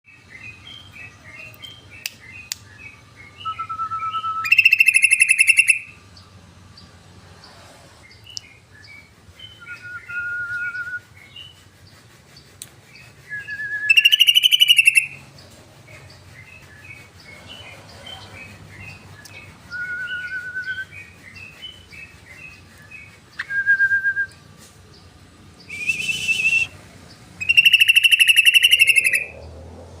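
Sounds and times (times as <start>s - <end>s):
bird chirping and whistling: 1.6s - 6.0s, 8.8s - 15.4s, 18.4s - 24.7s, 25.6s - 26.8s, 27.4s - 29.4s.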